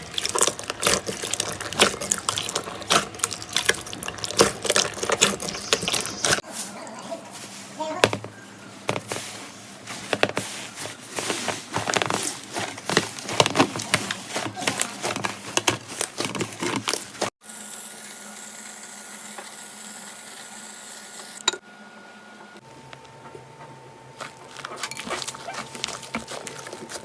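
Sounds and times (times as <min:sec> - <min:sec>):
slime squishing and crackling: 0:00.0 - 0:06.4, 0:11.2 - 0:17.3, 0:24.2 - 0:27.0.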